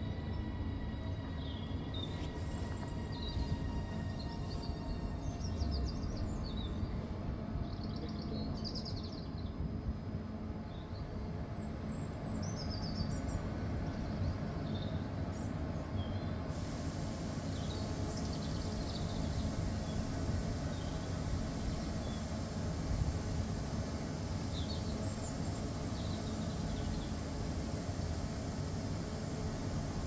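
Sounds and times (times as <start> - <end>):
train rumbling: 0.0 - 30.0
small birds chirping: 17.1 - 30.0.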